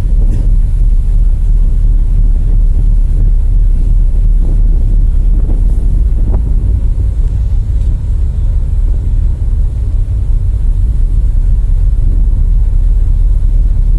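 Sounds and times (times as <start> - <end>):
ship low rumble: 0.0 - 13.9
wind buffeting microphone: 0.0 - 13.9.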